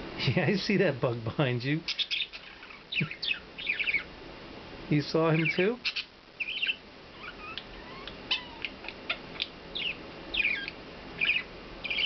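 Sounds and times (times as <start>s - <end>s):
budgerigar chirping: 1.9s - 4.1s, 5.3s - 12.0s.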